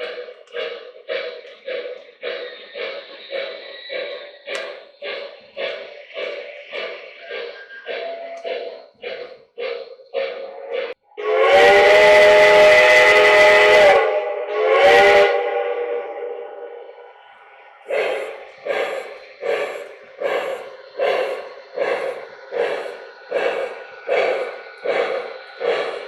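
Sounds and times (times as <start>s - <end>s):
steam hiss: 0.0s - 26.0s
steam locomotive chuffing: 0.0s - 26.0s
steam whistle blasts: 10.2s - 17.1s.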